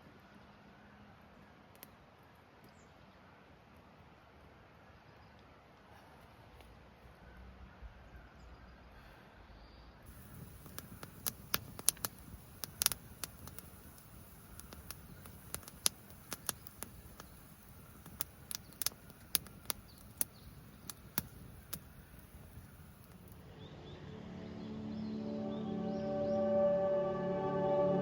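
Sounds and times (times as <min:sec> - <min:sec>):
low hiss: 0:09.1 - 0:28.0
campfire crackling: 0:10.1 - 0:23.5.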